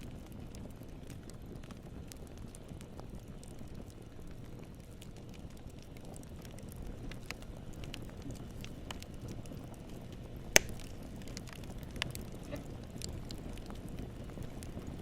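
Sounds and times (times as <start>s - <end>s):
campfire flame rumble: 0.0s - 15.0s
small fire crackles: 0.0s - 15.0s
loud wood pop: 10.6s - 10.9s.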